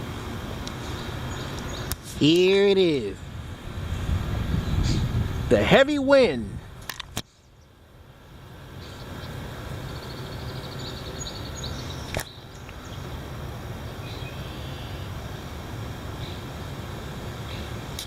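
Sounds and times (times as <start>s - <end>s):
wind blowing across microphone: 0.0s - 7.3s
bird chirps: 8.8s - 13.1s.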